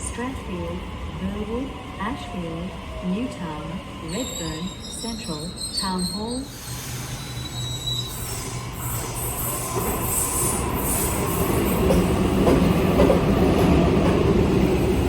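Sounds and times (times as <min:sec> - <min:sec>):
electric train rumble: 0:00.0 - 0:15.0
high-pitched wheel squeal: 0:04.1 - 0:10.3.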